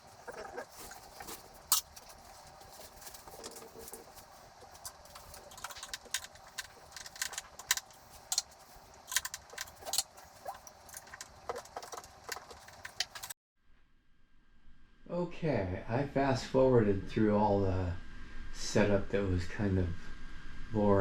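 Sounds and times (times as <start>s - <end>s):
small hard parts rattling: 0.0s - 13.4s
faint steady hum: 0.0s - 21.0s.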